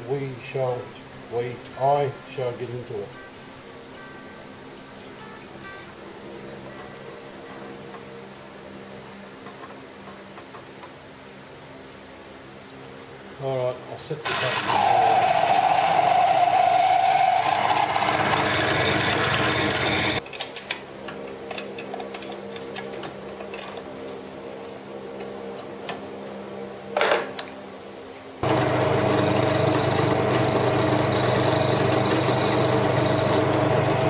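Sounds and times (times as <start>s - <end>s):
lathe motor humming: 14.3s - 20.2s, 28.4s - 34.0s.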